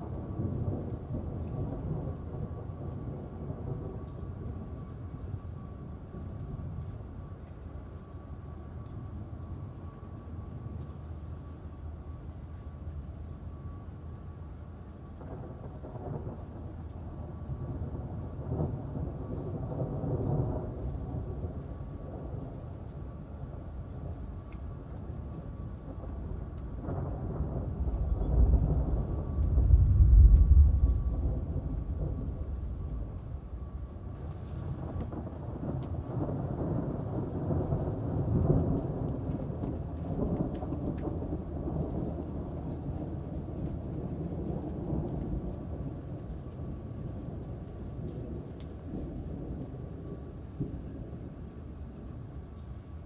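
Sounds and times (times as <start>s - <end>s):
rolling thunder: 0.0s - 6.7s, 15.2s - 22.8s, 25.0s - 51.5s
steady rain: 0.0s - 53.0s
raindrops ticking: 0.1s - 14.3s, 19.0s - 53.0s.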